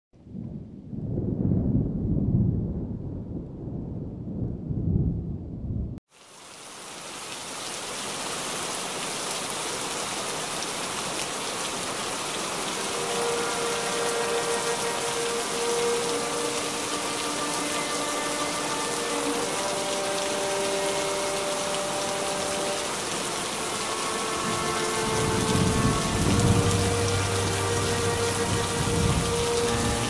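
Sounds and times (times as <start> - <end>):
thunder rumbling: 0.2 - 6.0, 24.4 - 30.0
heavy rain hiss: 6.1 - 30.0.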